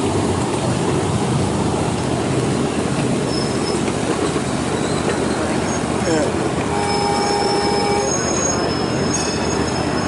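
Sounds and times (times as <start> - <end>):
train wheels rumbling on rails: 0.0 - 10.0
high wheel squeal: 3.2 - 3.9, 4.7 - 10.0.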